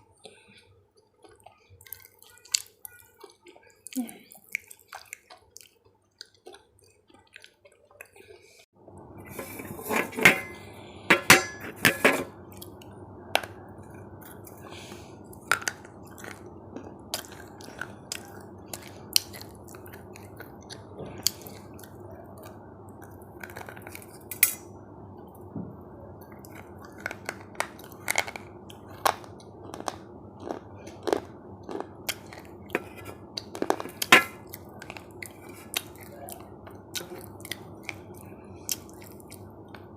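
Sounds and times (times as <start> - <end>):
steady low hum: 8.7 - 39.9
cutlery clinking against dishes: 9.4 - 12.3.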